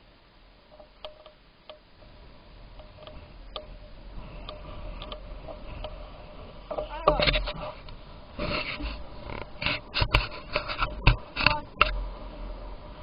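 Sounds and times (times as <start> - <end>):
low steady rumble: 0.0 - 13.0
light ticks and clicks: 0.7 - 1.9, 2.7 - 8.0.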